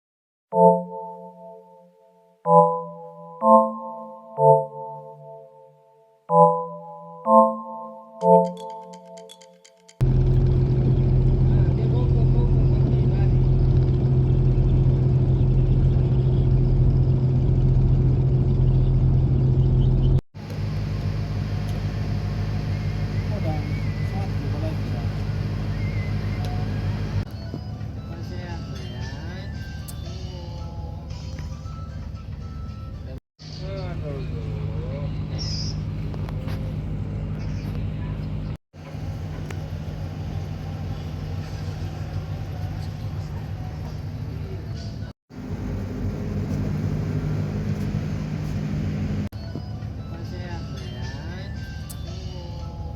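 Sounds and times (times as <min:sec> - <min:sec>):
boat engine humming: 0:10.0 - 0:51.7.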